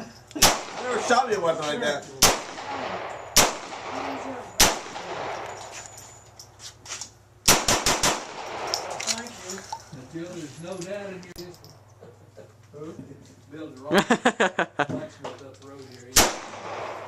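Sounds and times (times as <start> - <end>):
gunshots with ringing echo: 0.4 - 1.2, 2.2 - 5.6, 7.5 - 9.0, 16.2 - 17.0.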